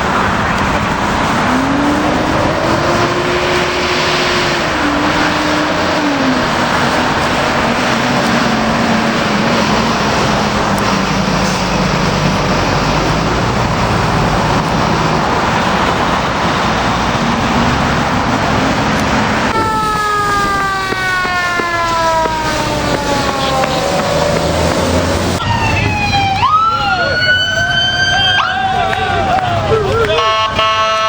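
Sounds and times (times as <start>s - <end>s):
siren wail: 0.0s - 11.4s, 19.5s - 31.0s
heavy vehicle engine and road noise: 0.0s - 31.0s.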